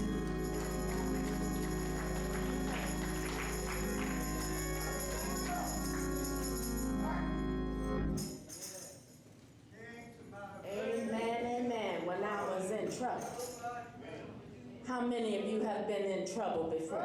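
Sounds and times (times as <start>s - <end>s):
voices singing: 0.0s - 7.9s
sustained chord: 0.0s - 8.2s.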